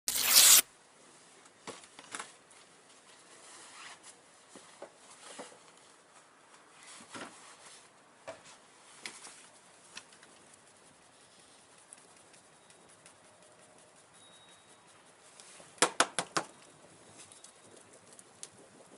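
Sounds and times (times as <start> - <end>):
bonfire crackling: 16.6 - 18.9.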